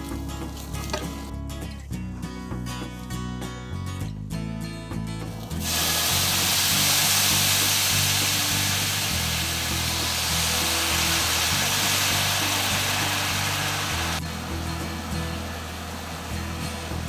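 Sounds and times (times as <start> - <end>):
background music: 0.0 - 17.0
chicken livers sizzling in oil: 5.3 - 17.0.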